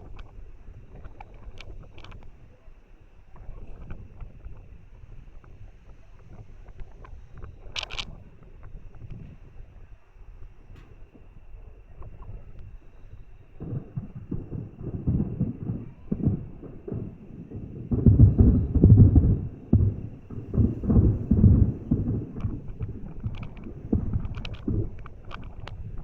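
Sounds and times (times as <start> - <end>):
fireworks crackling: 0.0 - 26.0
fireworks booming: 10.4 - 26.0.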